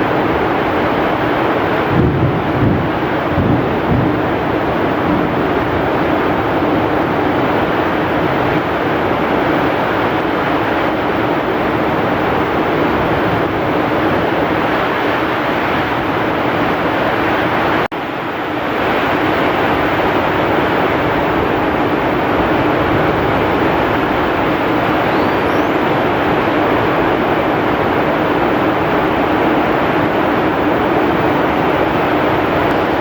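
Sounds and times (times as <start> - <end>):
heavy rain: 0.0 - 33.0
strong wind: 0.0 - 33.0.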